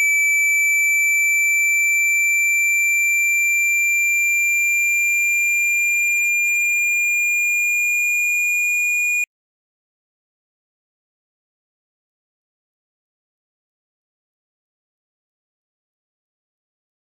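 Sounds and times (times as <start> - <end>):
high-pitched electronic tone: 6.1 - 9.2.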